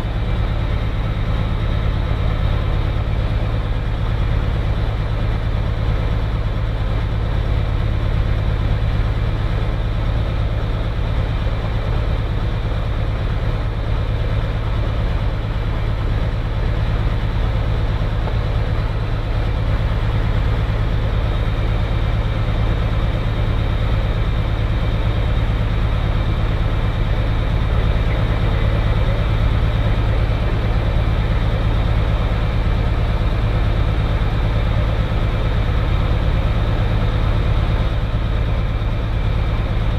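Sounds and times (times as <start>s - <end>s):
piston aircraft engine drone: 0.0s - 39.9s.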